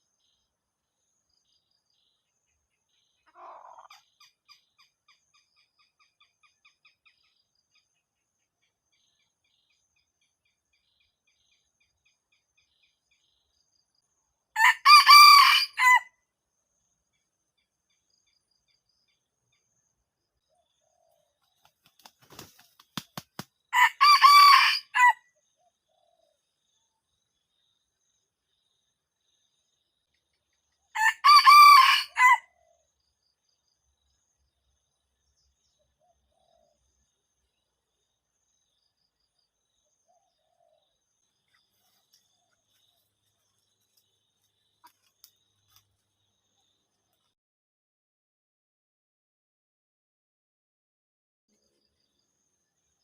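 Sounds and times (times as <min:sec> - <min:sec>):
faint bird chirps: 0:00.0 - 0:14.4, 0:25.3 - 0:31.0, 0:32.5 - 0:47.4, 0:51.5 - 0:53.0
rooster crowing: 0:14.6 - 0:16.1, 0:23.8 - 0:25.2, 0:31.0 - 0:32.5.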